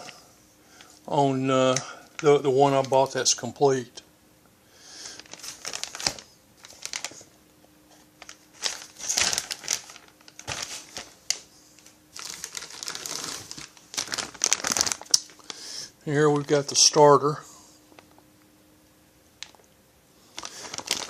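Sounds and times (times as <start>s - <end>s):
plastic packaging crinkling: 5.0s - 7.4s, 8.2s - 15.6s, 19.4s - 19.6s, 20.3s - 21.0s.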